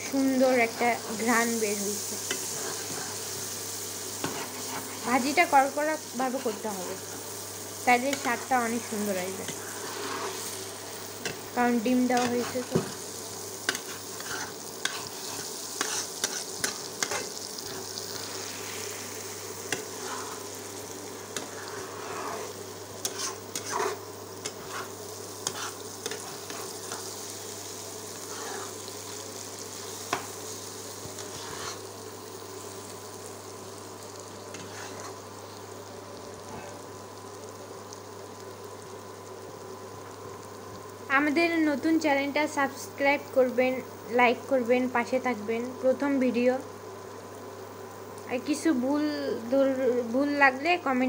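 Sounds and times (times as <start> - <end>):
food sizzling in a wok: 0.0 - 51.0
spatula scraping a pan: 2.1 - 5.1, 9.3 - 11.4, 12.1 - 27.3, 28.1 - 29.2, 31.1 - 31.9, 34.5 - 35.2.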